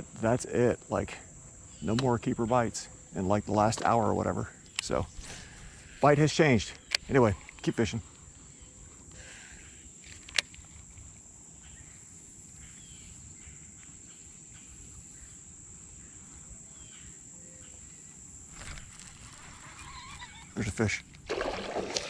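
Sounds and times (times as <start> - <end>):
insect buzzing: 4.8 - 22.0.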